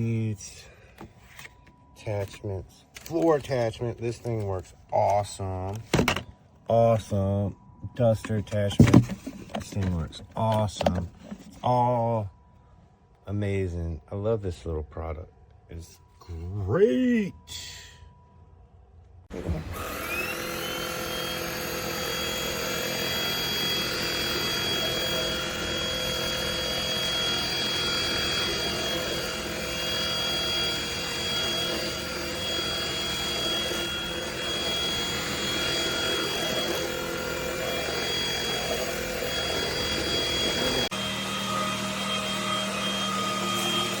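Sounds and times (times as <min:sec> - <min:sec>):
vacuum cleaner motor whining: 0:08.2 - 0:11.6, 0:19.3 - 0:44.0.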